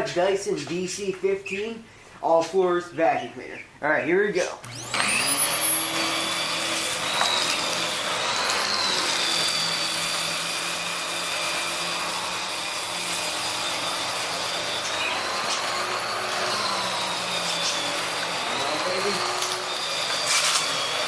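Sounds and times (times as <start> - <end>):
vacuum cleaner running on carpet: 4.7 - 21.0.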